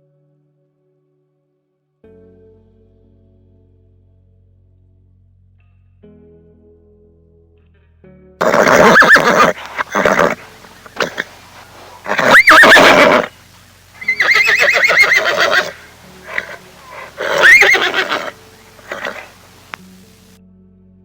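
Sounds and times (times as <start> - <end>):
animal calling with quavering pitch: 8.4 - 13.4, 14.0 - 20.0.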